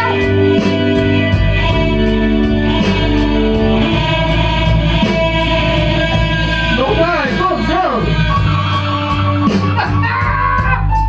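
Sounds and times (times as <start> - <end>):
bass: 0.0 - 11.0
electric guitar: 0.0 - 11.0
hi-hat beat: 0.0 - 11.0.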